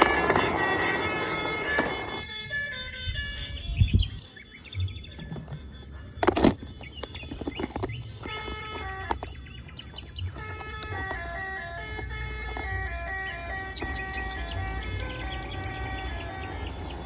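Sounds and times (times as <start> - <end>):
electronic beeping melody: 0.0 - 17.0
small plastic clicks: 6.2 - 12.8.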